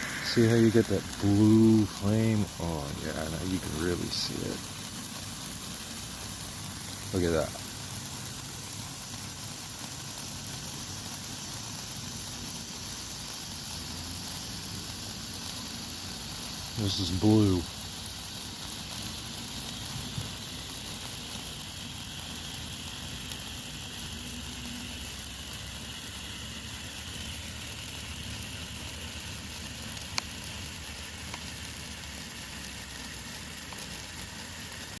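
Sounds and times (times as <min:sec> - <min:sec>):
firework pop: 0:00.0 - 0:02.0
fountain firework hissing: 0:00.0 - 0:35.0.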